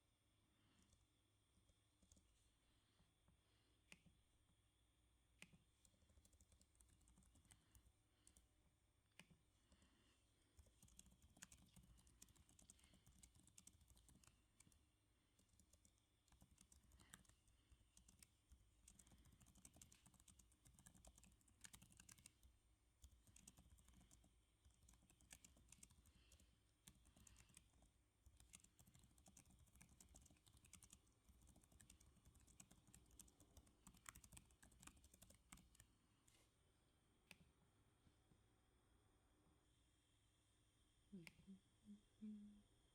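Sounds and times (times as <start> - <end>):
soft keyboard typing: 0.6 - 2.6, 5.3 - 36.0.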